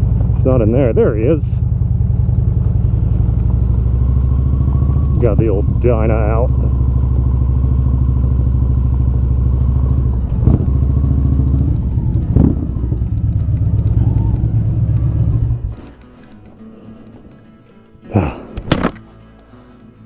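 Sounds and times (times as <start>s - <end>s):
motorcycle engine running: 0.0s - 19.8s
brief knocks: 18.4s - 19.1s.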